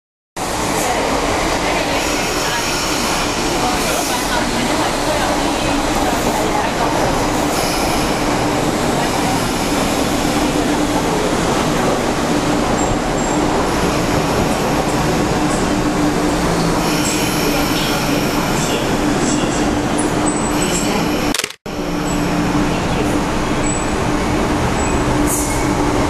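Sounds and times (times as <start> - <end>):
train noise with low hum: 0.4 - 26.0
faint high train squeal: 1.9 - 6.6, 7.3 - 10.7, 16.2 - 21.3, 22.0 - 26.0.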